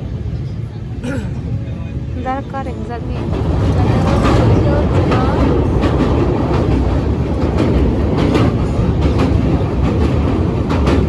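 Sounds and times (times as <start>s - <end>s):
train rumbling: 0.0s - 11.0s
wheels clacking over rail joints: 2.5s - 11.0s.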